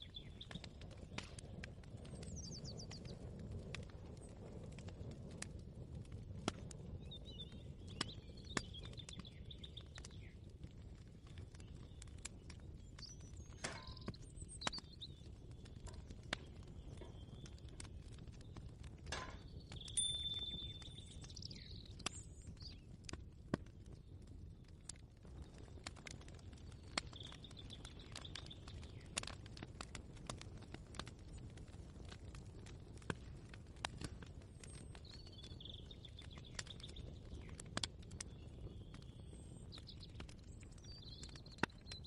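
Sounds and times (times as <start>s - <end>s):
birds chirping: 0.0s - 3.2s, 6.9s - 10.6s, 11.2s - 23.0s, 26.5s - 29.4s, 34.6s - 42.0s.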